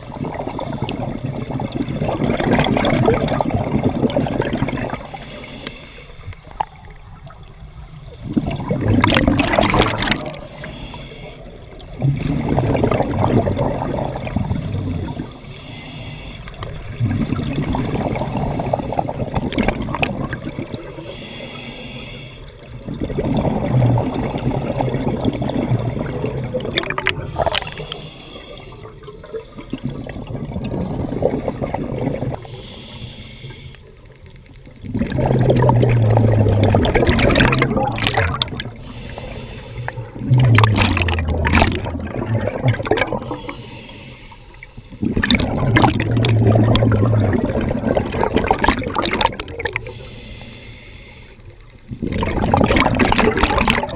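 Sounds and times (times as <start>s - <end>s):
diver inhaling through regulator: 0.0s - 1.2s, 2.4s - 3.9s, 4.5s - 6.6s, 10.3s - 13.0s, 14.3s - 16.6s, 17.6s - 19.4s, 20.6s - 22.6s, 24.0s - 25.2s, 27.0s - 34.0s, 38.4s - 41.7s, 43.0s - 46.4s, 48.6s - 51.6s
exhaled bubbles gurgling underwater: 0.0s - 53.9s.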